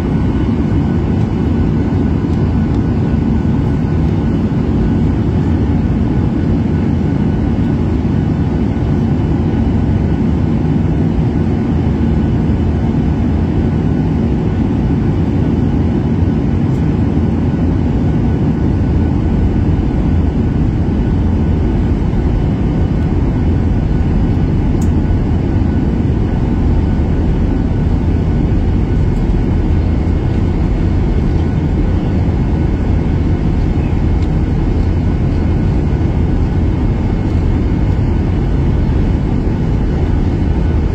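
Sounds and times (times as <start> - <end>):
airliner engines and airflow rumble: 0.0 - 40.9.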